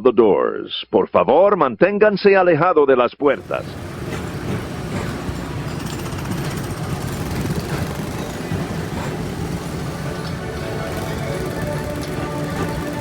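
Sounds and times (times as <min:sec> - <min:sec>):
ride vehicle rumbling on track: 0:03.4 - 0:13.0.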